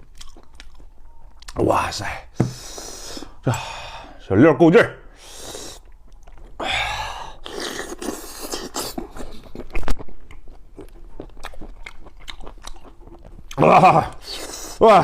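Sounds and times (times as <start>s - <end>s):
person chewing wetly: 0.0s - 1.6s, 5.6s - 6.6s, 7.2s - 14.8s.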